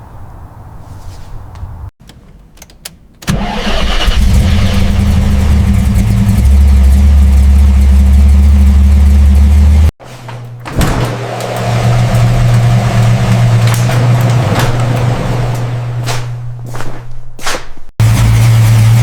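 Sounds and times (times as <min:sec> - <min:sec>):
car engine rumbling: 0:03.3 - 0:10.0, 0:11.2 - 0:16.6, 0:18.0 - 0:19.0.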